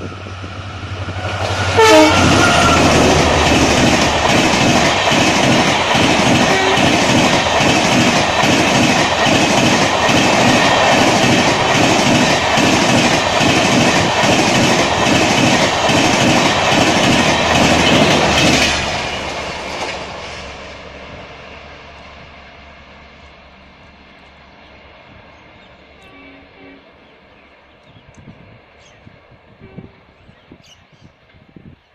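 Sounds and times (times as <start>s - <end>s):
train wheels clickety-clack: 0.2s - 20.6s.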